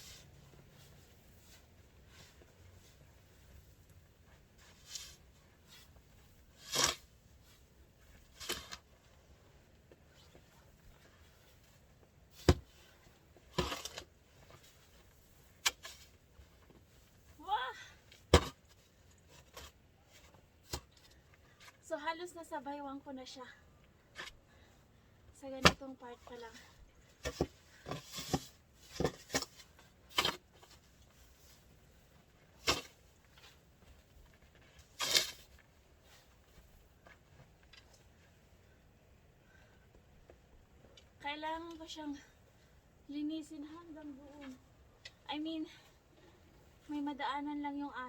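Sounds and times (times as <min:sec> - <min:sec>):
snow crunching and scraping: 0:00.0 - 0:17.7, 0:25.8 - 0:38.8
shovel scraping snow: 0:04.6 - 0:07.6, 0:08.2 - 0:08.8, 0:27.2 - 0:31.7, 0:32.6 - 0:33.6, 0:34.8 - 0:36.2.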